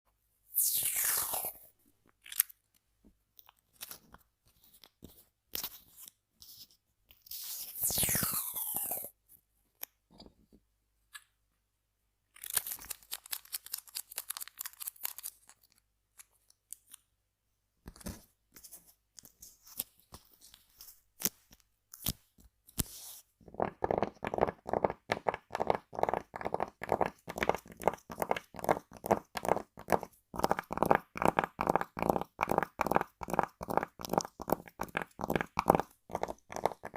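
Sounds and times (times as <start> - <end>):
crinkling tape: 12.3 - 17.1.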